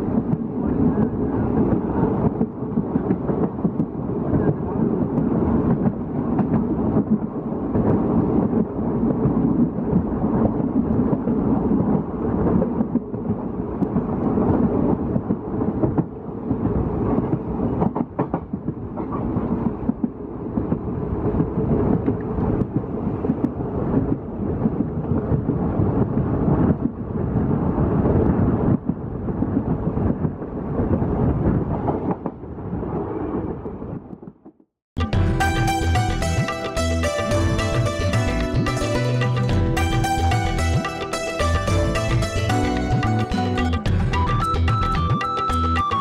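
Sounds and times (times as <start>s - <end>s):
train wheels rumbling on rail: 0.0s - 34.4s.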